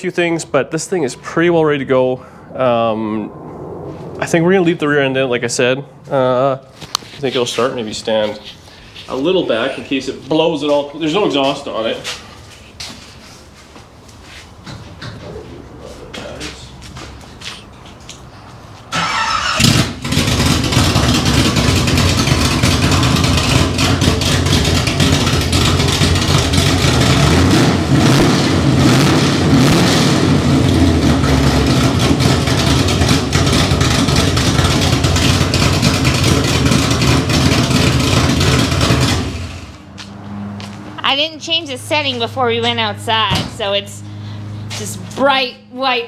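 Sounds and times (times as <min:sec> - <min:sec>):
engine cranking and starting: 0:18.9 - 0:27.5, 0:30.6 - 0:39.8
loud engine running: 0:19.0 - 0:40.8.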